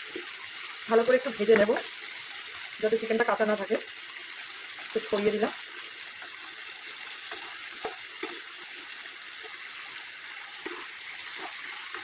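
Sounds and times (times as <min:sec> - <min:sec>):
chicken sizzling in hot oil: 0:00.0 - 0:12.0
wooden spatula scraping a pan: 0:10.3 - 0:12.0.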